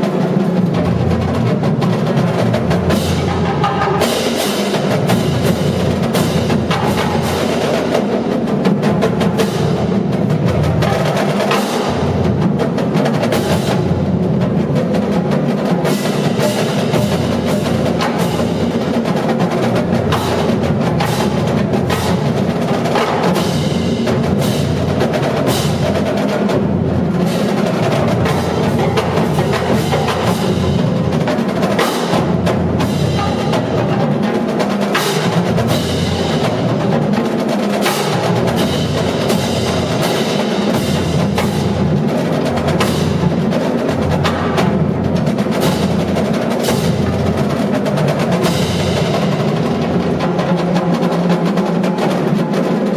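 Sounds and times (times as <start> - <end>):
marching drumline playing: 0.0 - 52.9.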